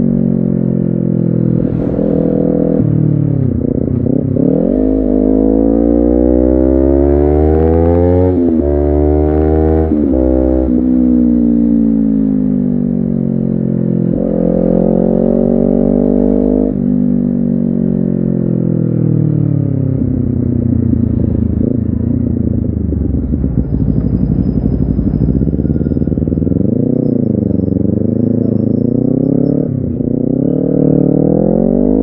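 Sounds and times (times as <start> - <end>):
motorcycle engine slowing down: 19.8 - 28.7.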